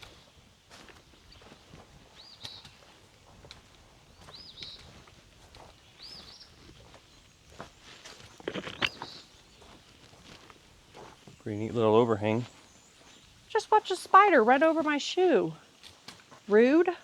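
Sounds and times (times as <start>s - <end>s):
footsteps: 2.6s - 11.5s
songbird calling: 4.1s - 5.0s, 5.8s - 7.3s, 8.3s - 9.8s, 11.3s - 15.3s.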